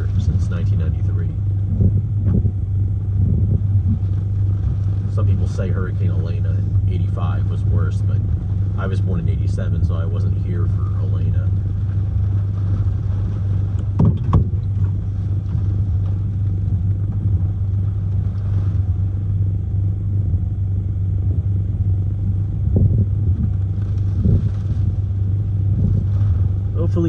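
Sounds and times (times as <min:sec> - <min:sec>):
wind buffeting a van: 0:00.0 - 0:27.0
knocks or gusts: 0:11.4 - 0:19.0.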